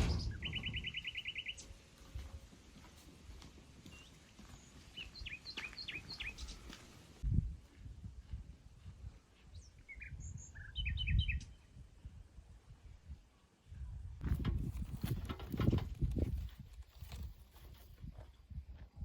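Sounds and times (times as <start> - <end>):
low rumbles: 0.0 - 1.7
small birds chirping: 0.0 - 7.2, 9.3 - 11.8.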